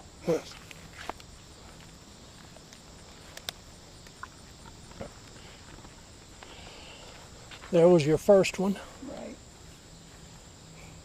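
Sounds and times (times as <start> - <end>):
crickets chirring: 0.0 - 11.0
footsteps: 0.4 - 3.4, 4.1 - 8.0
faint clicks: 2.7 - 4.8.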